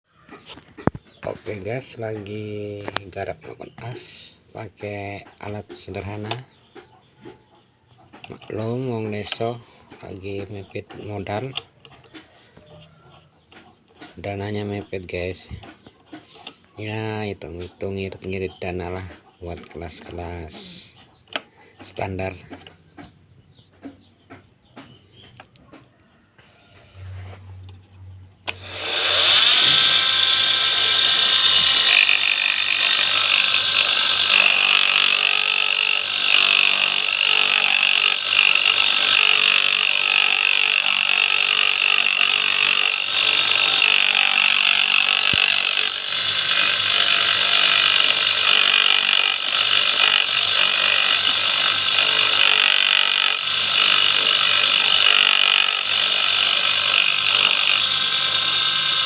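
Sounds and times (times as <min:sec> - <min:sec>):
high-pitched scraping hiss: 0:26.0 - 0:39.7
lathe motor whining: 0:28.4 - 0:59.0.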